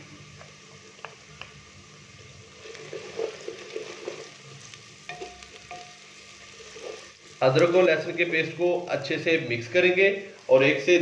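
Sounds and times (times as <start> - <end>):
onions sizzling in hot oil: 0.0 - 11.0
wooden spoon stirring and scraping: 2.5 - 8.2.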